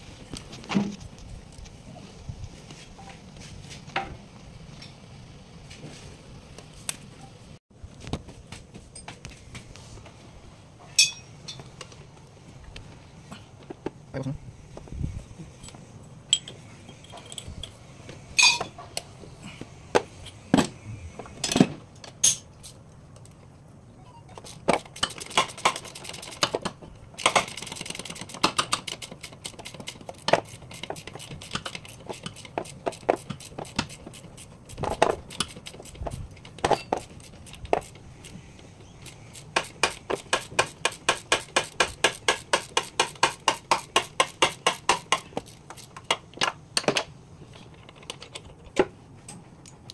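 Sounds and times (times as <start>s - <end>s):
metal tools clinking on metal: 10.9s - 11.7s, 15.6s - 17.8s, 18.4s - 18.8s, 21.4s - 22.8s, 36.4s - 37.8s.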